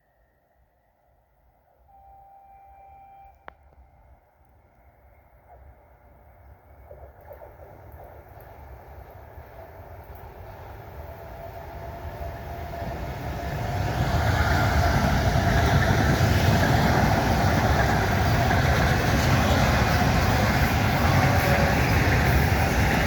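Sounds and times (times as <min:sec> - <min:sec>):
train wheels rumbling on rail: 0:04.6 - 0:23.0.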